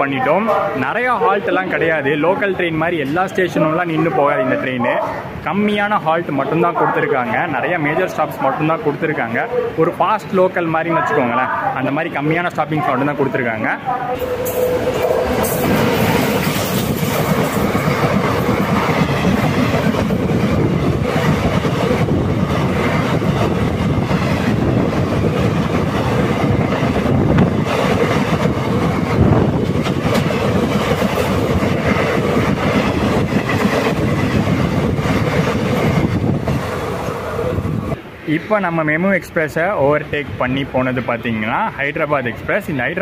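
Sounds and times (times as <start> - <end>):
train wheels rushing on rails: 14.1 - 38.6
clickety-clack of rail joints: 14.2 - 37.5.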